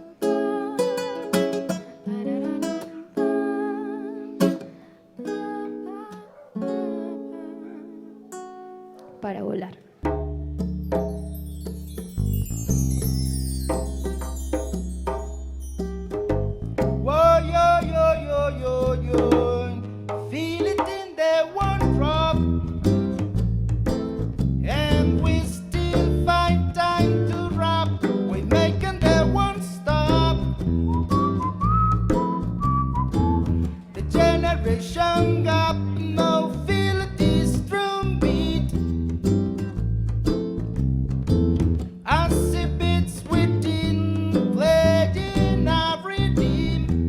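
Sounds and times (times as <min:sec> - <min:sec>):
acoustic guitar strumming chords: 0:00.0 - 0:09.0, 0:10.1 - 0:47.0
person singing long notes: 0:05.2 - 0:08.2
drums: 0:10.1 - 0:17.1
wavering melody line: 0:10.8 - 0:17.2.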